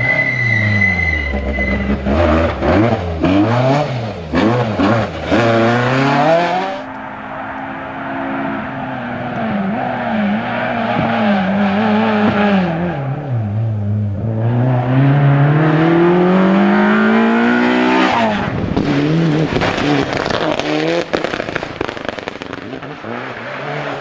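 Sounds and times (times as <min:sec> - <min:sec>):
rally car engine revving: 0:00.0 - 0:24.0
engine crackles and pops: 0:18.5 - 0:23.3.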